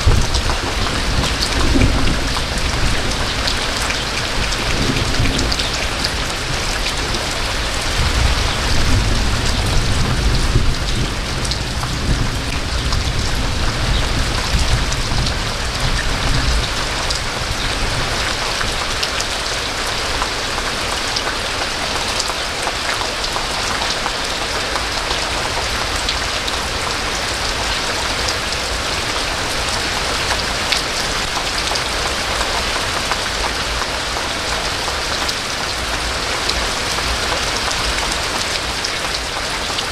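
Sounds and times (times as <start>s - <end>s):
thunder rumbling: 0.0s - 20.9s
steady rainfall: 0.0s - 39.9s.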